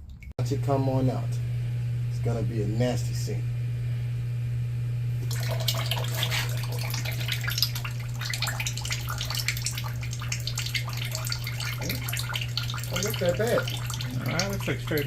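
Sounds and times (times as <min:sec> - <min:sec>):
steady low hum: 0:00.0 - 0:15.0
oil pouring into a pan: 0:05.2 - 0:15.0.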